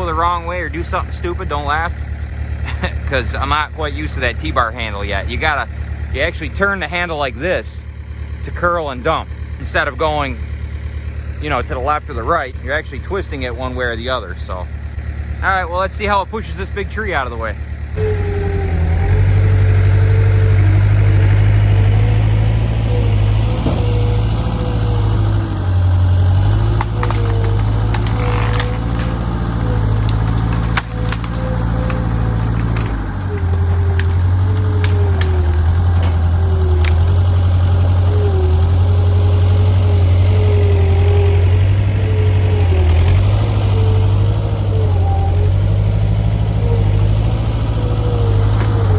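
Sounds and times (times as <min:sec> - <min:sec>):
loader engine running: 0:00.0 - 0:48.9
whine changing in pitch: 0:15.4 - 0:48.9.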